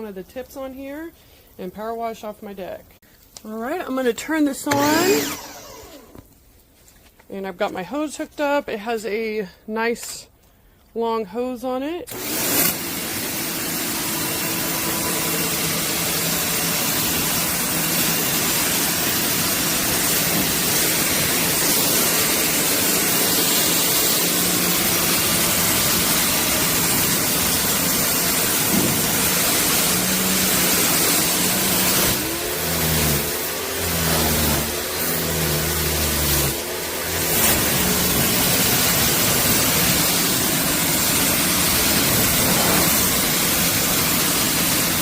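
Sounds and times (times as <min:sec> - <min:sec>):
pump motor humming: 0:04.7 - 0:06.2, 0:12.1 - 0:45.0
water jet hissing: 0:12.5 - 0:33.3, 0:37.2 - 0:45.0.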